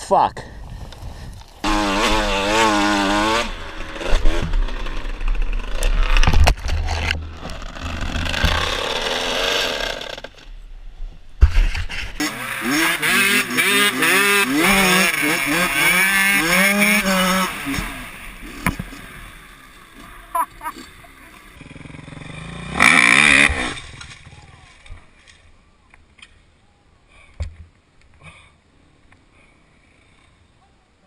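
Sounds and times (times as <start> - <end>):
dirt bike engine revving: 1.6 - 6.2, 7.2 - 10.4, 12.1 - 24.1.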